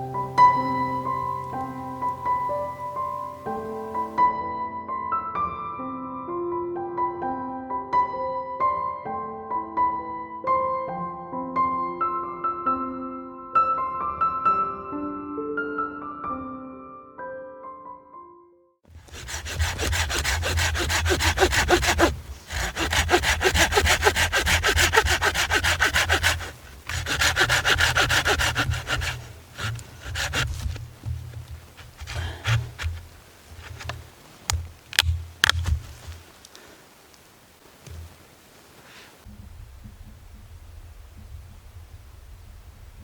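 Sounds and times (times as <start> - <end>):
handsaw cutting wood: 19.0 - 34.6.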